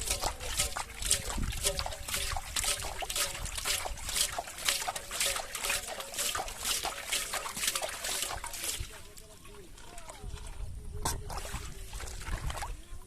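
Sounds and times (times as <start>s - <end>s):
shallow water sloshing and splashing: 0.0s - 13.0s.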